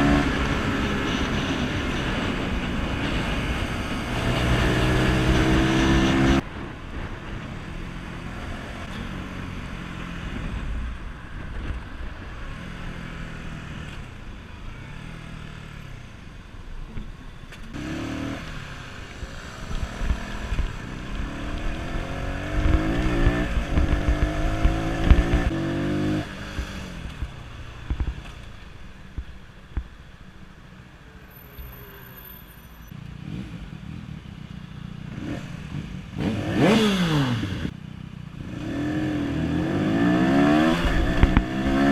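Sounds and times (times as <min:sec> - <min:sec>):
motorcycle engine revving through gears: 0:00.0 - 0:06.4, 0:17.6 - 0:28.6, 0:33.2 - 0:34.3, 0:35.0 - 0:41.9.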